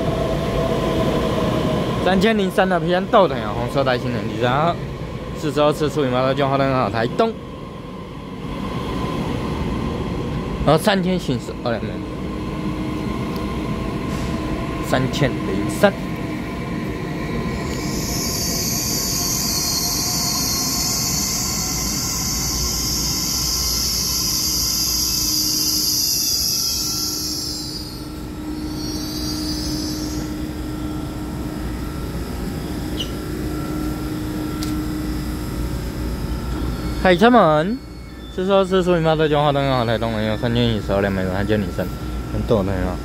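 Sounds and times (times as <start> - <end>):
train humming: 0.0 - 43.0
electric train squealing: 17.4 - 43.0.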